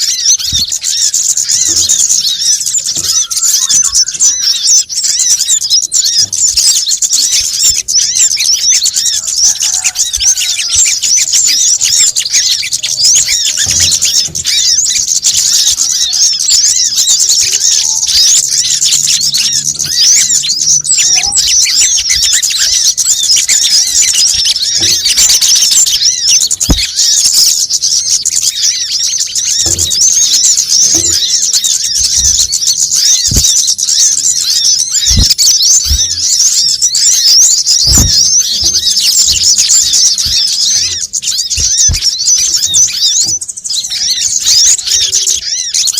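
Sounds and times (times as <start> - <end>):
sunbirds chattering: 0.0 - 45.9.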